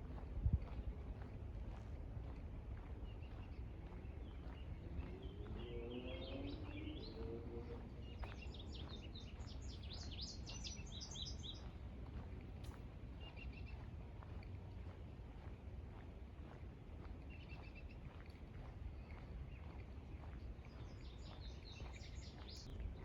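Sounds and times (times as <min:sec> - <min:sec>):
steady low rumble: 0:00.0 - 0:23.0
small songbirds singing: 0:03.2 - 0:07.4, 0:08.0 - 0:11.7, 0:19.5 - 0:22.7.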